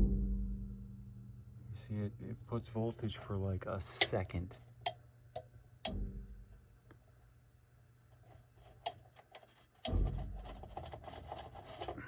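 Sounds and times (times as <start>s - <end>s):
relay clicks: 4.0s - 5.0s.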